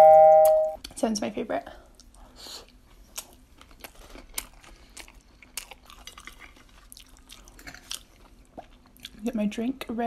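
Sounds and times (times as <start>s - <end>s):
person chewing with mouth clicks: 1.9s - 9.2s.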